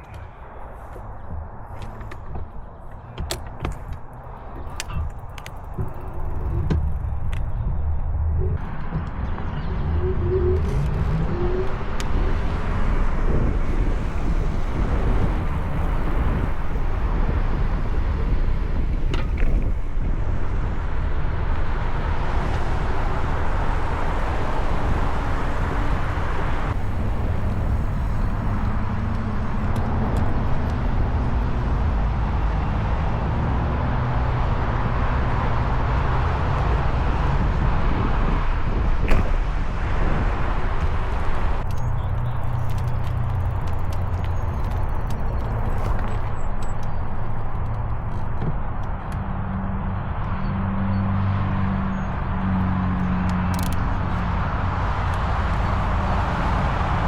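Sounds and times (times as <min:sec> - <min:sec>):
trike rolling noise: 0:00.0 - 0:49.7
wind rush: 0:04.0 - 0:47.8.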